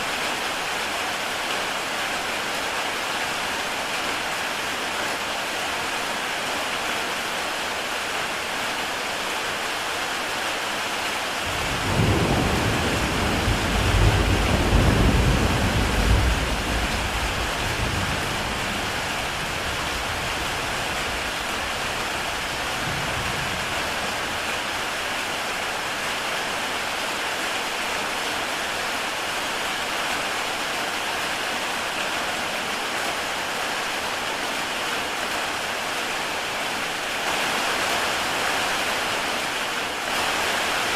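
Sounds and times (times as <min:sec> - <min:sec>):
heavy rain on a tile roof: 0:00.0 - 0:40.9
thunder rumbling: 0:11.5 - 0:24.4.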